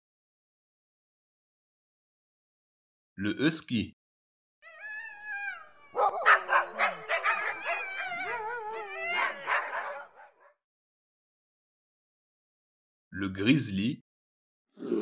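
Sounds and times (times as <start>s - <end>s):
dog yipping: 4.7s - 10.5s
husky howling: 4.7s - 10.5s.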